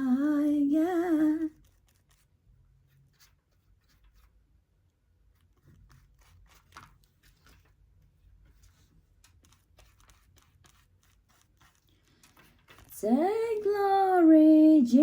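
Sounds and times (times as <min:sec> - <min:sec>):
paper rustling and crackling: 0:05.4 - 0:13.0.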